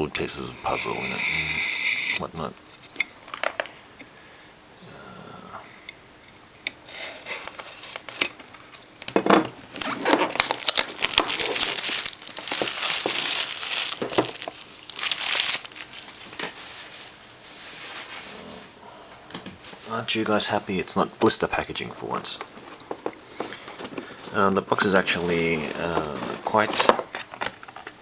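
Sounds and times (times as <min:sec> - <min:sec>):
quiet handling sounds: 0:00.0 - 0:04.2, 0:05.8 - 0:28.0
packaging crinkling and tearing: 0:06.8 - 0:18.5, 0:22.0 - 0:28.0.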